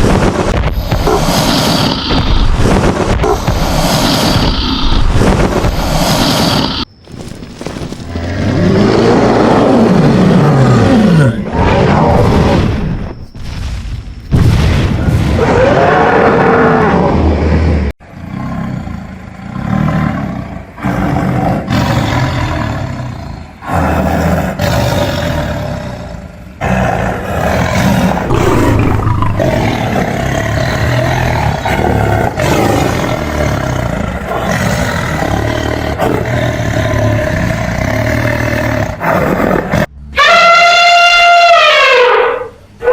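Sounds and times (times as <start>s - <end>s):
animal roars: 0.0s - 6.9s, 8.1s - 13.0s, 15.4s - 42.9s.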